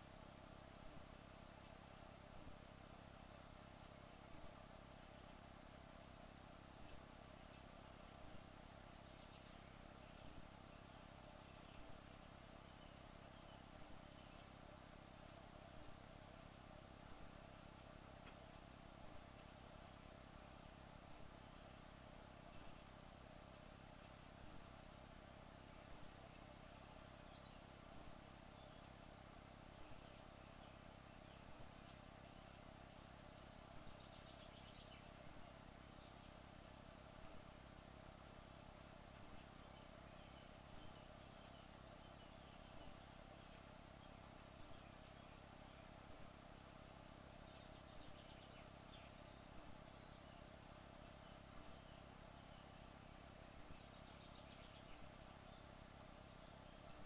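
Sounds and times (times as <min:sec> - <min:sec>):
faint steady hiss: 0:00.0 - 0:57.0
faint steady hum: 0:00.0 - 0:57.0
soft ticks: 0:06.8 - 0:07.7, 0:18.2 - 0:18.6.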